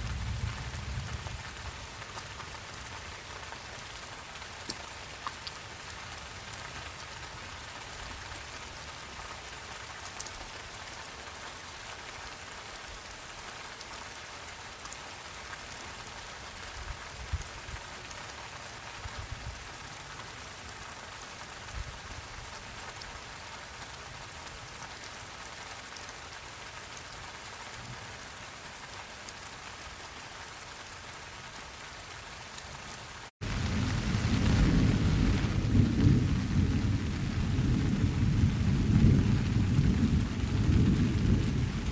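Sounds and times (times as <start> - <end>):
steady rain falling: 0.0 - 41.9
thunder rumble: 33.4 - 41.9.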